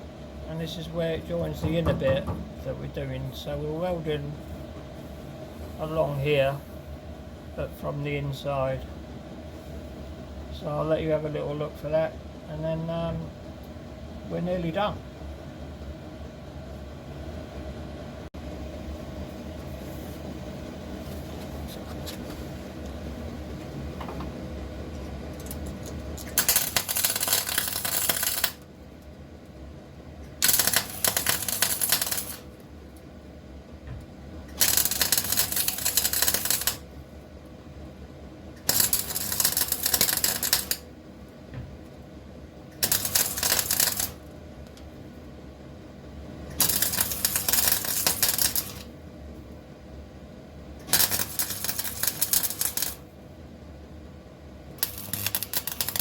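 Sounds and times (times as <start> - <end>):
steady hum: 0.0 - 56.0
crackling welding bursts: 26.3 - 28.6, 30.4 - 32.5, 34.6 - 36.8, 38.6 - 40.8, 42.8 - 44.2, 46.6 - 48.9, 50.8 - 53.0, 54.8 - 56.0.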